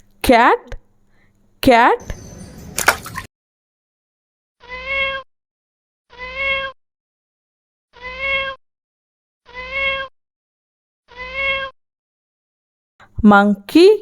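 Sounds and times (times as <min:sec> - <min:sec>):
cat meowing: 0:04.6 - 0:05.2, 0:06.1 - 0:06.8, 0:08.0 - 0:08.6, 0:09.5 - 0:10.1, 0:11.1 - 0:11.8.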